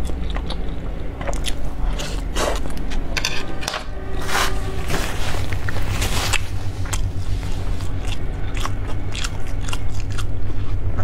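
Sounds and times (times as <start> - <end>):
chewing and eating: 0.0 - 3.2, 5.5 - 11.0
steady low hum: 0.0 - 11.0
tissue rustling: 4.2 - 7.9.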